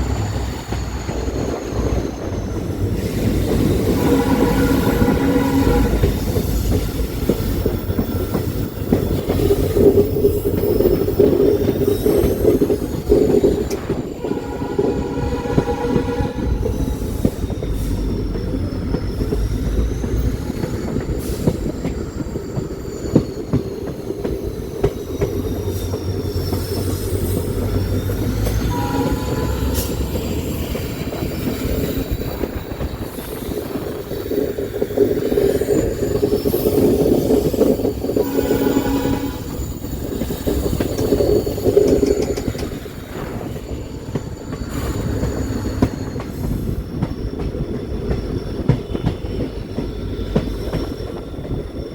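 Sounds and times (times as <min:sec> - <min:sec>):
high wheel squeal: 0:00.0 - 0:51.9
train wheels rumbling on rails: 0:00.0 - 0:51.9
horn-like tones: 0:03.8 - 0:06.2, 0:14.2 - 0:17.1, 0:28.6 - 0:30.2, 0:38.2 - 0:39.8.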